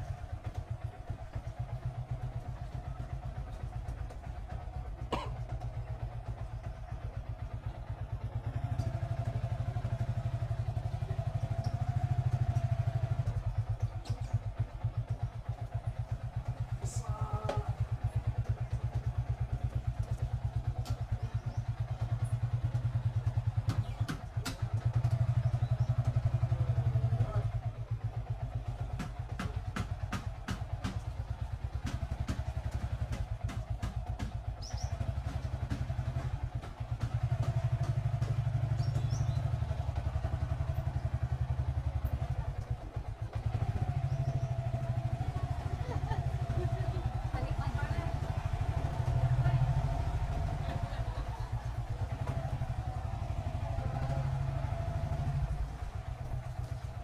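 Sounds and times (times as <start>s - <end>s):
motorcycle engine running: 0.0s - 57.0s
light clicks and clatter: 11.1s - 16.7s.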